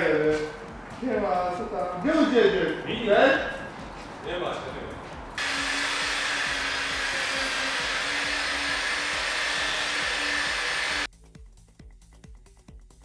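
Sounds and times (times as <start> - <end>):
background music with steady beat: 0.0 - 13.0
blower power tool rushing: 5.4 - 11.1.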